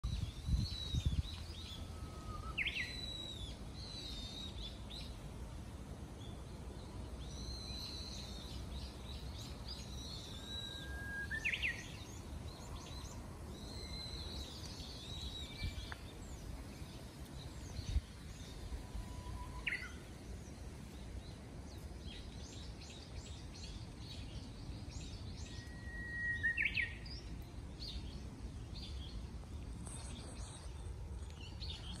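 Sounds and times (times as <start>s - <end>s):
birds chirping and whistling: 0.0s - 5.1s, 7.2s - 20.6s, 22.1s - 28.2s.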